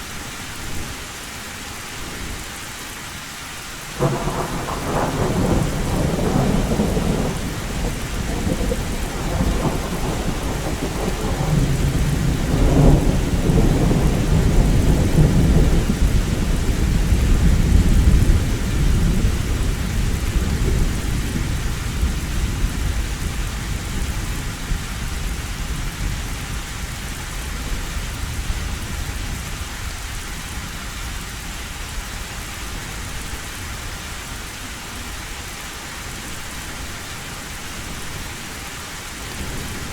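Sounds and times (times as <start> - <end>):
heavy rain on metal roof: 0.0 - 39.9
thunder rolling: 4.0 - 24.1.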